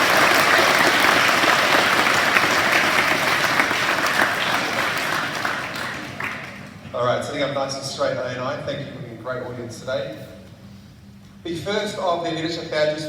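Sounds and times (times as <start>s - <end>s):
audience clapping: 0.0s - 6.9s.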